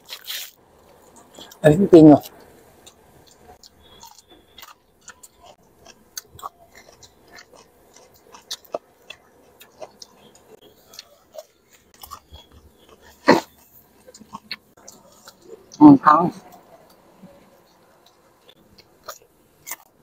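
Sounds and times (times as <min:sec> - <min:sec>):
loud crisp crunching bite: 0:00.0 - 0:00.6, 0:18.7 - 0:19.9
wet chewing with crunches: 0:00.0 - 0:01.6, 0:02.2 - 0:15.8, 0:16.4 - 0:20.0.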